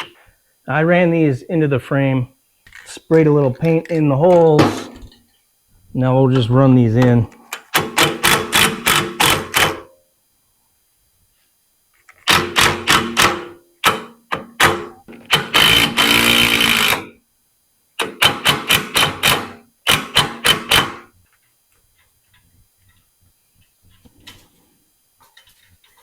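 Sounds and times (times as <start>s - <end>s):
power driver driving screws: 14.6s - 17.1s.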